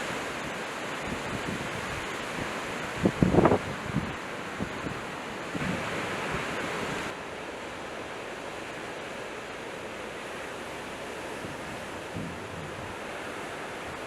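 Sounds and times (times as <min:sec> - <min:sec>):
strong blizzard wind rushing: 0:00.0 - 0:07.2, 0:10.9 - 0:14.0.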